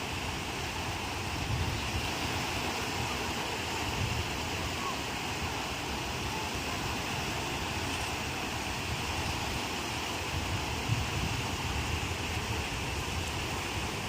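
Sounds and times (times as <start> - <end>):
ocean surf breaking: 0.0 - 14.0
wind buffeting microphone: 0.0 - 14.0.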